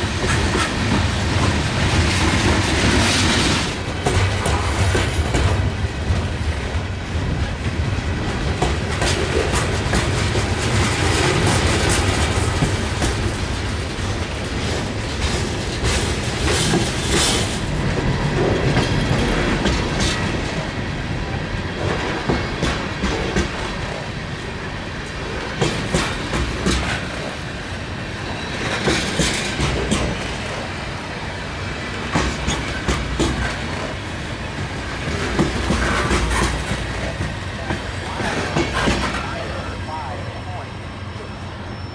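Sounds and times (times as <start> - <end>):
freight train rumbling past: 0.0 - 41.9
wheels clicking over rail joints: 25.0 - 27.5, 28.6 - 30.7, 31.9 - 39.4.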